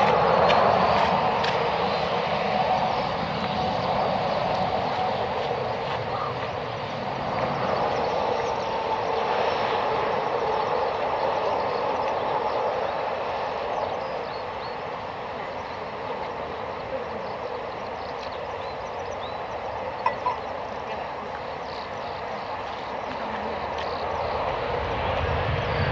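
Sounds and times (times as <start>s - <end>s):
jet engines rushing: 0.0s - 25.9s.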